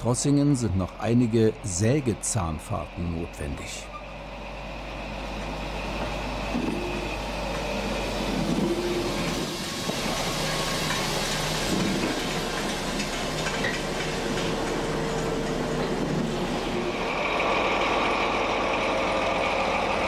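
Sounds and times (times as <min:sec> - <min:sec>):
locomotive engine hum: 0:00.0 - 0:20.0
train wheels rolling over rail joints: 0:04.0 - 0:20.0.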